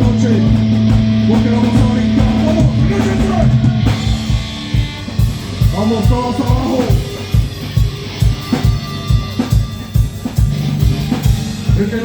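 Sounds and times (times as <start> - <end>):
drum hits: 0.0 - 7.6
heavy metal band playing: 0.0 - 12.0.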